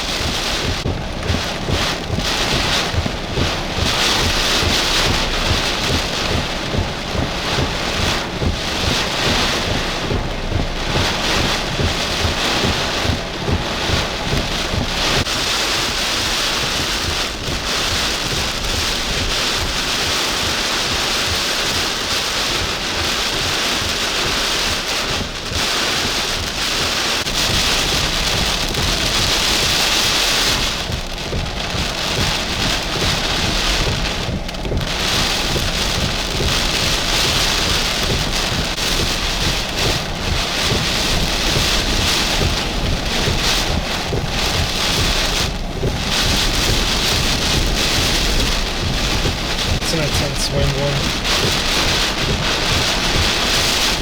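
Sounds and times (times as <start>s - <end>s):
heavy rain hissing: 0.0s - 54.0s
wind buffeting microphone: 22.7s - 54.0s.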